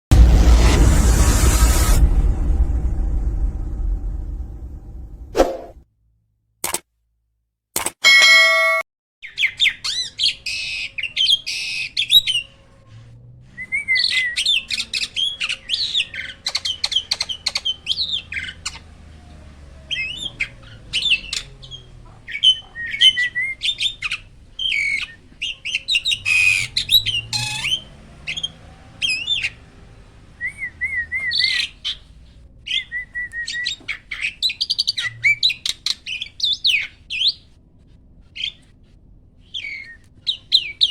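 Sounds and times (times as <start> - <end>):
steady tone: 0.1 - 5.8.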